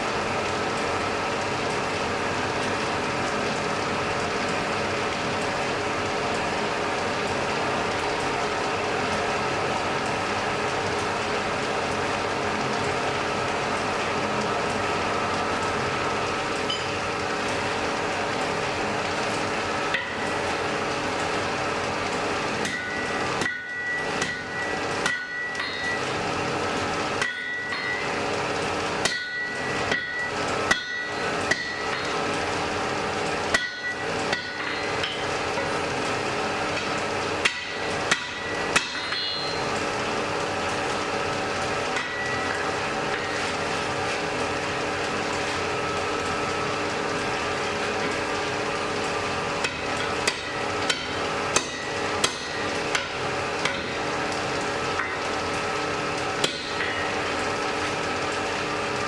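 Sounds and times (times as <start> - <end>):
forge fire rushing hum: 0.0 - 59.0
hammer striking iron on anvil: 22.6 - 26.0, 27.2 - 28.1, 29.0 - 32.2, 33.5 - 35.3, 37.4 - 39.6, 42.0 - 42.4, 49.6 - 54.0, 56.4 - 57.1.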